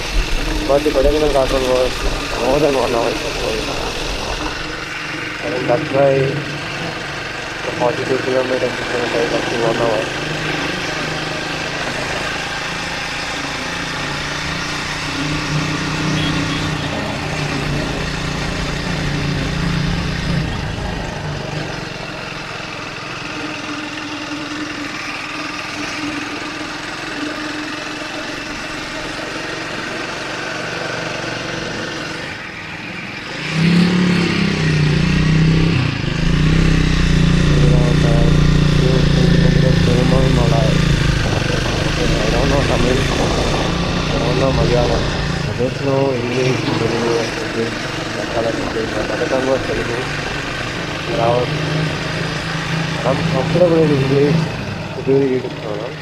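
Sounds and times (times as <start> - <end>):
wind noise on microphone: 0.0 - 5.4, 40.7 - 44.2
motorcycle engine running: 0.0 - 56.0.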